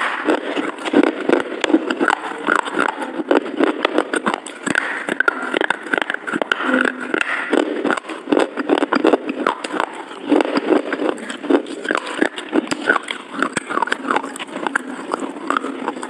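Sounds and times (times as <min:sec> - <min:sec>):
close chewing of soft cake: 0:00.0 - 0:16.0
lip smacks: 0:00.0 - 0:16.0.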